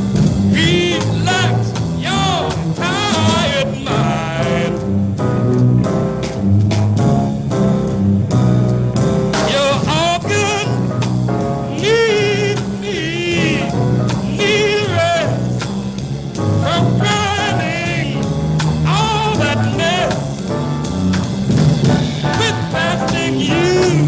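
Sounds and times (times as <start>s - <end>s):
swinging jazz band: 0.0s - 24.0s
person singing with vibrato: 0.6s - 4.8s, 9.5s - 10.9s, 11.7s - 15.5s, 16.6s - 20.4s, 22.4s - 24.0s.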